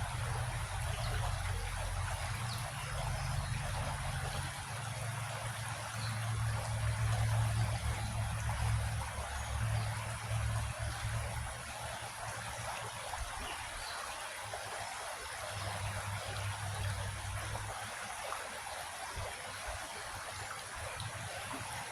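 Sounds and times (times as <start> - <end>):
low uneven rumble: 0.0 - 13.9, 15.4 - 17.9
creek flowing over rocks: 0.0 - 21.9.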